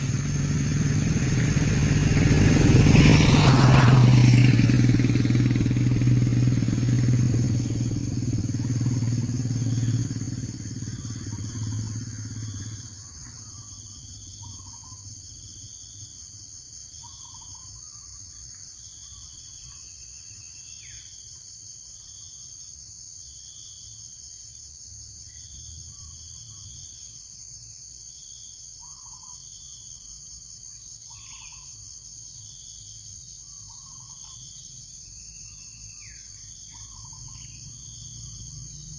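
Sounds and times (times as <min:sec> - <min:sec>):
vehicle engine humming: 0:00.0 - 0:15.2, 0:36.5 - 0:38.9
insects droning: 0:00.0 - 0:38.9.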